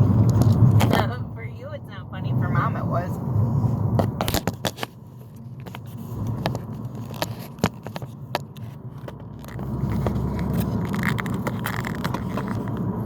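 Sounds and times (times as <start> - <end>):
car road noise rumble: 0.0 - 13.0
small clicks and scrapes: 0.2 - 1.0, 4.0 - 13.0.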